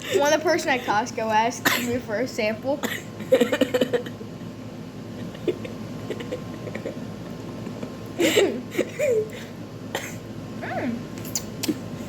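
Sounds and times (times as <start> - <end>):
laughter: 3.3 - 4.2, 5.2 - 8.2.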